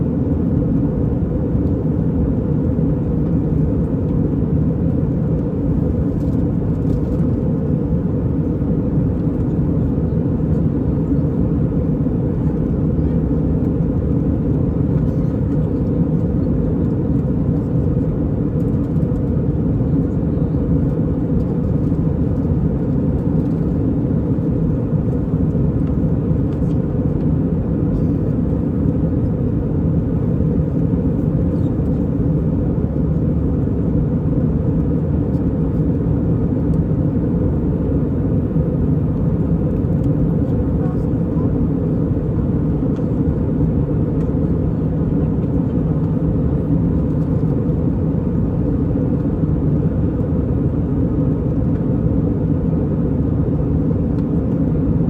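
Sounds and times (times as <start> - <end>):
jet engines and airflow in cabin: 0.0 - 55.0.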